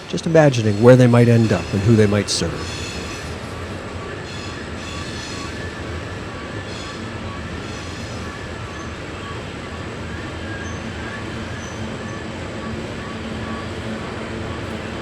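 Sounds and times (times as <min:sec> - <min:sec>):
faint high wheel squeals: 0:00.0 - 0:15.0
train wheels rumbling on rail: 0:00.0 - 0:15.0.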